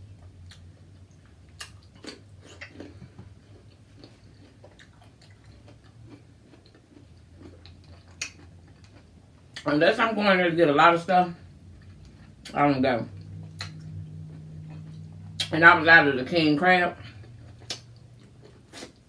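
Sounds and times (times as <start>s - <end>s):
faint low hum: 0.0s - 19.0s
quiet chewing with mouth clicks: 0.2s - 9.7s, 11.8s - 15.5s, 17.0s - 19.0s.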